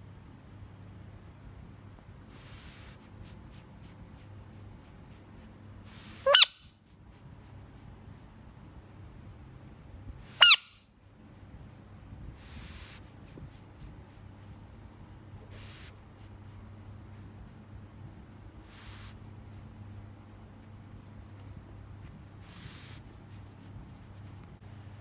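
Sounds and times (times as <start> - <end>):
frog screaming: 6.3 - 6.6, 10.4 - 10.7.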